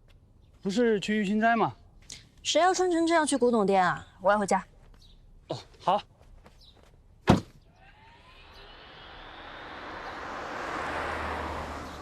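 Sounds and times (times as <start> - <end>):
car approaching: 7.7 - 12.0.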